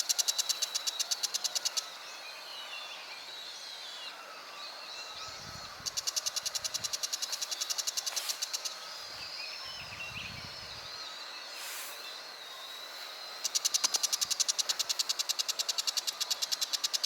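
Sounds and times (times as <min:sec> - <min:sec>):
bird rapid chattering call: 0:05.8 - 0:08.8, 0:13.4 - 0:17.0.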